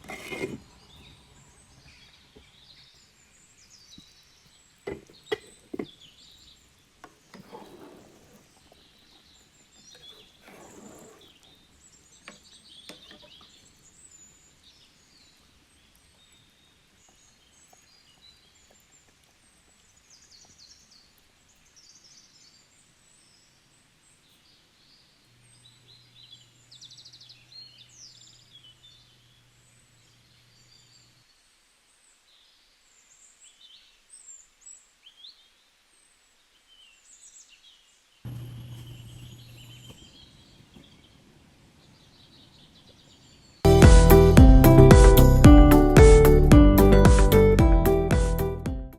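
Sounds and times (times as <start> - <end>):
faint birdsong chirps: 0.0 - 44.3
low steady hum: 38.3 - 40.6.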